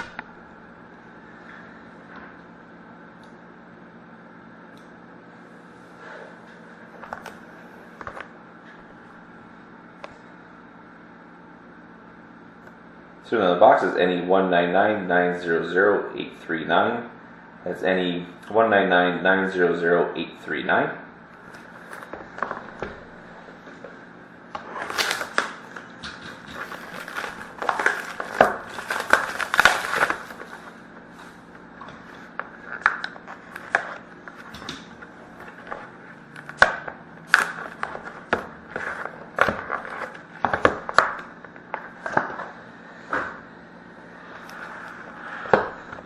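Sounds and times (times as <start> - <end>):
packaging tearing and crinkling: 24.6 - 30.7, 36.4 - 40.2.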